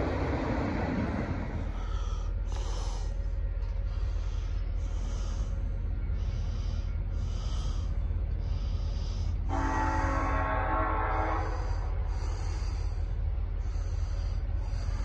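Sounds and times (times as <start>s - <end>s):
train rumble: 0.0s - 15.0s
soft pulsing hiss: 1.6s - 10.2s.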